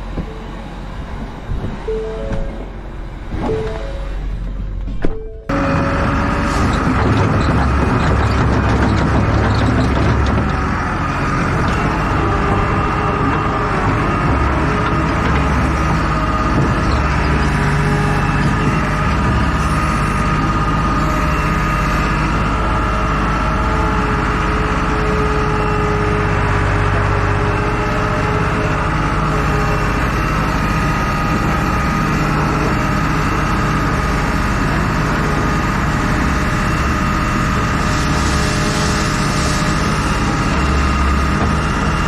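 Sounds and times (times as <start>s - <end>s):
heavy vehicle engine running: 0.0s - 42.0s.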